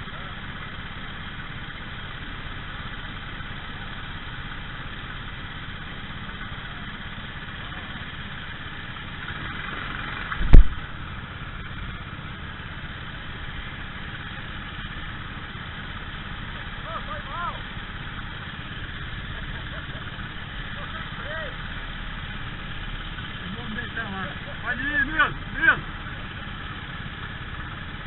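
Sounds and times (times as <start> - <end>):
kart engines running: 0.0 - 28.0
loud thump: 10.4 - 11.0.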